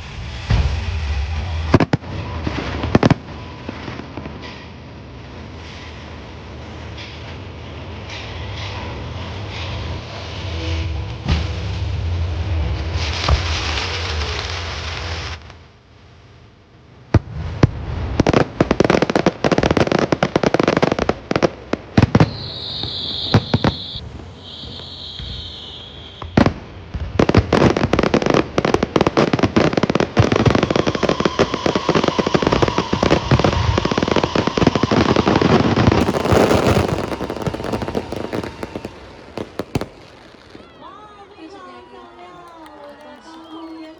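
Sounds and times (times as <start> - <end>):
fireworks bangs and crackling: 17.2 - 43.9
high firework whistles: 22.1 - 26.6, 30.4 - 43.9.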